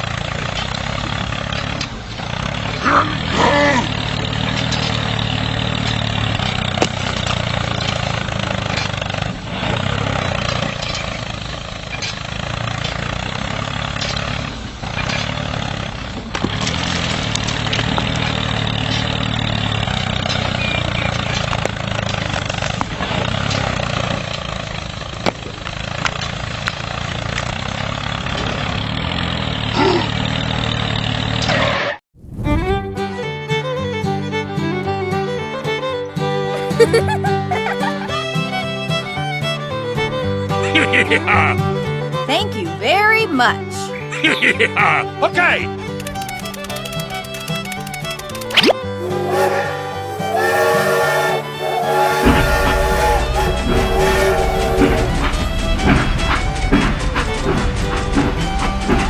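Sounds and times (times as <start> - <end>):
small engine running steadily: 0.0 - 31.6.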